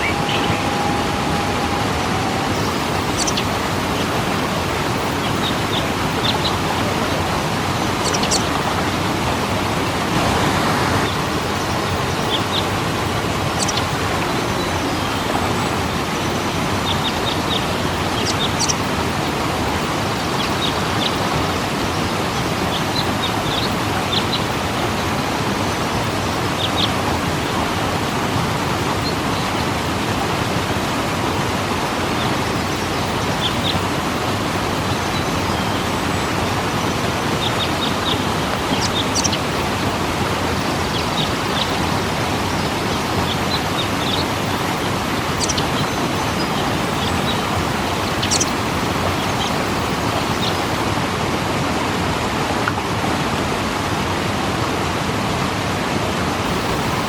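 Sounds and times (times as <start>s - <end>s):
bird chirps: 0.0s - 4.1s, 37.4s - 39.9s, 40.6s - 50.7s
waterfall rushing: 0.0s - 57.0s.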